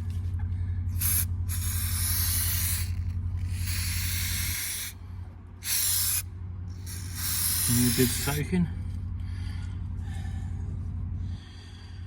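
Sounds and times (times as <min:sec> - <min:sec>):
steady low hum: 0:00.0 - 0:12.0
aerosol can spraying: 0:01.0 - 0:04.9, 0:05.6 - 0:06.2, 0:06.8 - 0:08.4.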